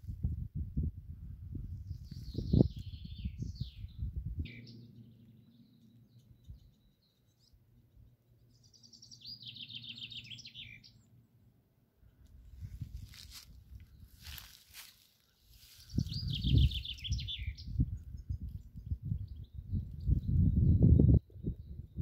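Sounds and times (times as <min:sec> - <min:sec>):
songbird singing: 0:01.7 - 0:12.2, 0:13.0 - 0:22.0
footsteps rustling on dry ground: 0:12.3 - 0:17.0.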